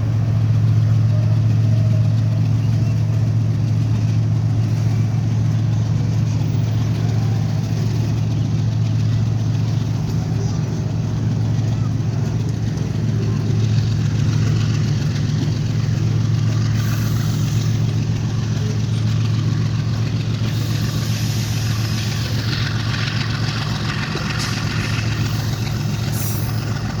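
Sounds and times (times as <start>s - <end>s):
high-pitched train rolling noise: 0.0s - 27.0s
locomotive engine drone: 0.0s - 27.0s.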